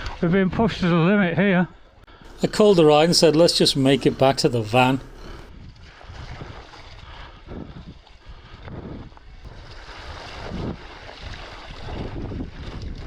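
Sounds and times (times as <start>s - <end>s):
wind buffeting microphone: 5.2s - 13.0s.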